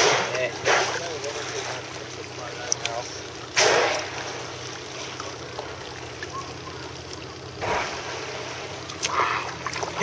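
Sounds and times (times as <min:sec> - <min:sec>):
water lapping around kayak hull: 0:00.0 - 0:10.0.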